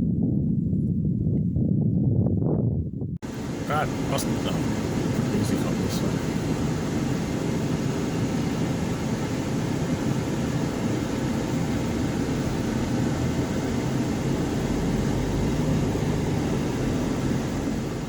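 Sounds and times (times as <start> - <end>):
vehicle engine from cabin: 3.2 - 18.0.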